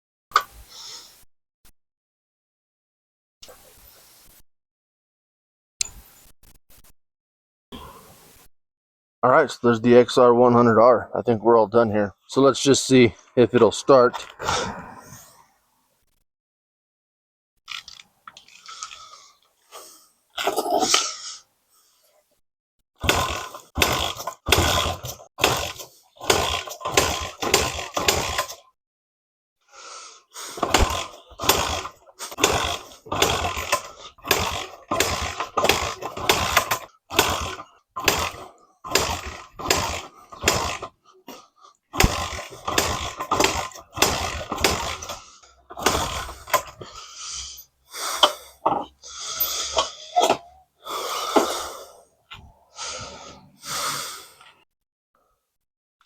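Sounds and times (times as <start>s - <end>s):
motorcycle engine kickstarted: 23.0s - 28.7s, 30.4s - 51.9s.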